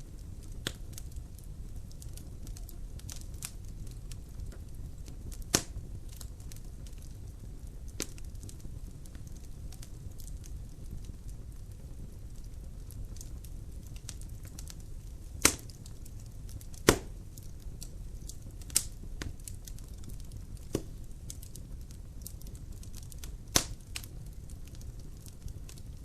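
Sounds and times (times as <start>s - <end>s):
fire rustling and crackling: 0.0s - 26.0s
wood popping sharply: 16.8s - 17.1s.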